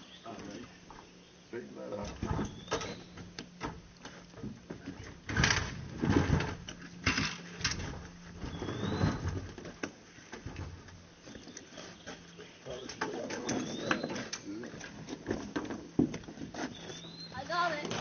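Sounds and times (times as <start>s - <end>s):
knocks and thumps from framing work: 2.0s - 11.0s, 15.0s - 16.7s
bird chirping: 2.4s - 3.2s, 8.4s - 9.4s, 11.2s - 14.5s, 16.6s - 17.8s.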